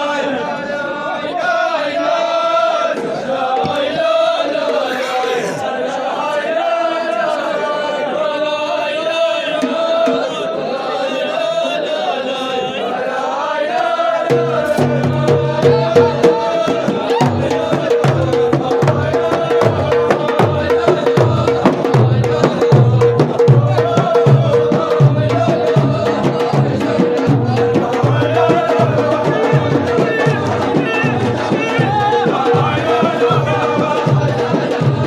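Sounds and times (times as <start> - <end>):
group chanting: 0.0 - 35.0
frame drums beating: 13.8 - 35.0.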